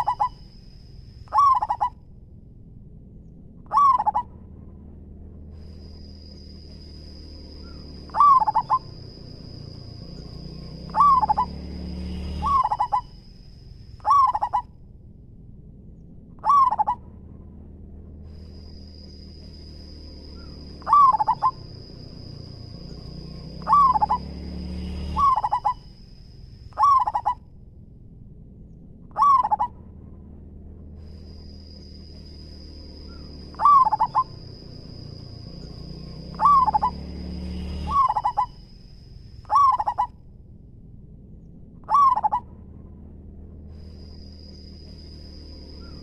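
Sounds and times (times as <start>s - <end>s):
dove cooing: 0.0s - 0.4s, 1.3s - 2.0s, 3.7s - 4.3s, 7.6s - 9.6s, 10.8s - 11.6s, 12.3s - 13.1s, 14.0s - 14.7s, 16.4s - 17.0s, 20.4s - 21.9s, 23.6s - 24.3s, 25.1s - 25.8s, 26.8s - 27.4s, 29.1s - 29.7s, 33.1s - 35.0s, 36.3s - 37.0s, 37.9s - 38.5s, 39.5s - 40.1s, 41.9s - 42.4s
low rumble: 0.0s - 46.0s
steady high whistling tone: 5.6s - 14.4s, 18.3s - 27.3s, 31.1s - 40.1s.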